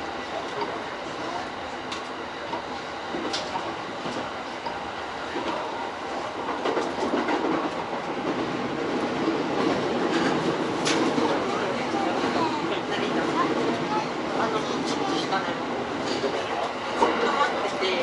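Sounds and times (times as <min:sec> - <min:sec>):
train wheel and rail noise: 0:00.0 - 0:18.0.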